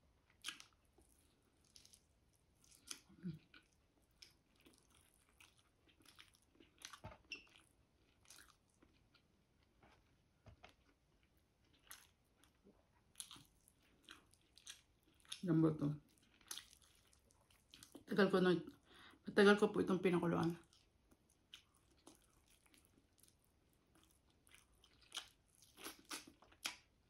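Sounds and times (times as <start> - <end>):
person chewing food: 0.2 - 15.4, 16.0 - 18.1, 20.6 - 27.0
wet mouth clicks and smacks: 25.1 - 26.9.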